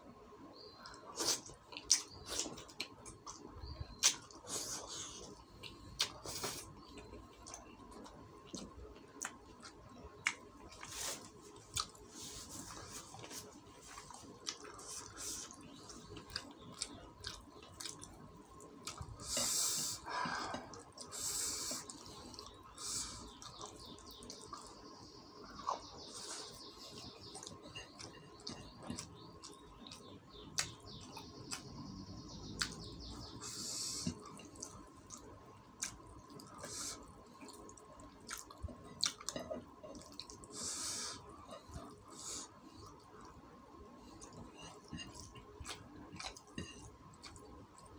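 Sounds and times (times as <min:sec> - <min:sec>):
lip smacking and chewing: 0:05.5 - 0:12.0, 0:13.8 - 0:19.2, 0:34.0 - 0:40.6, 0:44.2 - 0:47.9.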